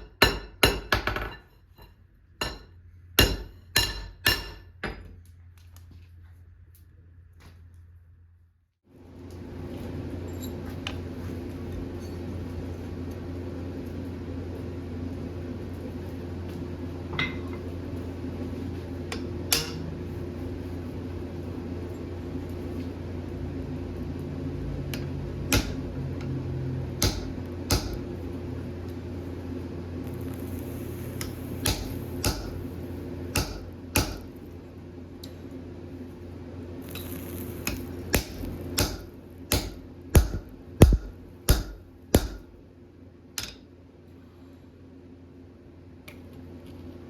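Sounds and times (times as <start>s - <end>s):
hammer striking steel on anvil: 0.0s - 1.5s, 2.4s - 5.1s, 19.5s - 19.8s, 25.5s - 25.8s, 27.0s - 28.0s, 31.6s - 32.7s, 33.3s - 34.3s, 37.1s - 42.5s
steady low hum: 0.0s - 47.0s.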